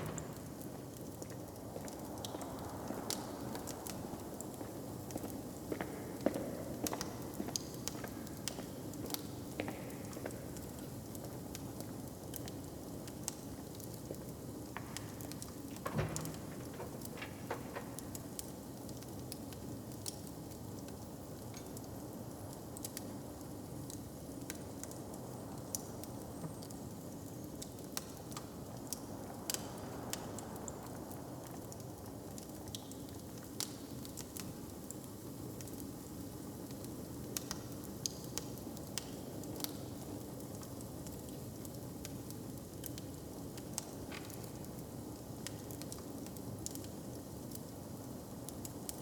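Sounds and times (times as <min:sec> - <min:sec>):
fire crackling: 0:00.0 - 0:26.0.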